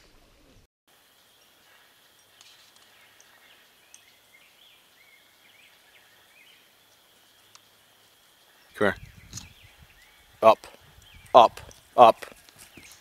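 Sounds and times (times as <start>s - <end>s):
thin steady high tone: 0.9s - 9.0s
distant birds chirping: 0.9s - 13.0s.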